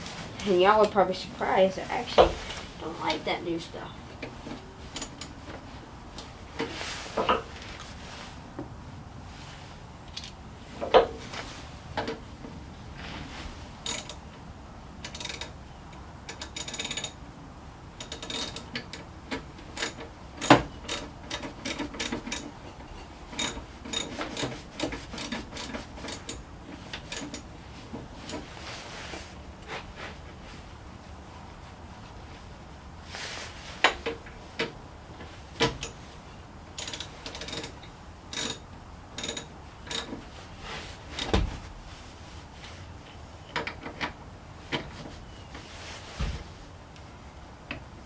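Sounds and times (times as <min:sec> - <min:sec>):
metal tools clicking and rattling: 0:04.9 - 0:05.4, 0:13.8 - 0:14.2, 0:15.0 - 0:15.6, 0:16.3 - 0:17.2, 0:18.0 - 0:27.5, 0:36.8 - 0:38.6, 0:39.2 - 0:40.2.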